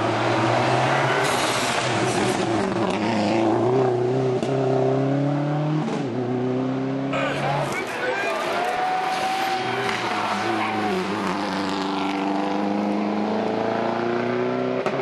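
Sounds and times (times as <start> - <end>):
road and tyre noise: 0.0 - 15.0
rally car engine accelerating: 9.0 - 15.0.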